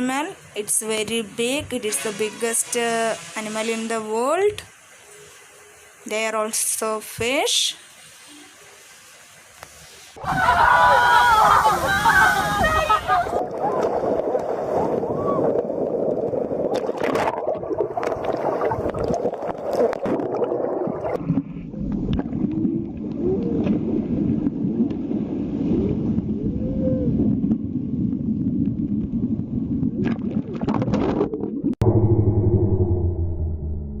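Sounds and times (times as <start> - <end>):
rushing water underwater: 7.8 - 33.8
whale moaning calls: 22.6 - 23.7, 25.9 - 27.4.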